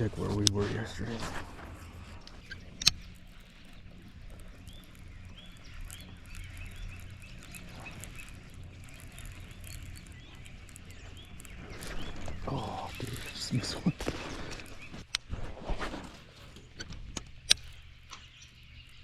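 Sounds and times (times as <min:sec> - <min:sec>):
birds chirping: 0:00.0 - 0:19.0
low steady hum: 0:00.0 - 0:19.0
sharp click: 0:02.2 - 0:03.2.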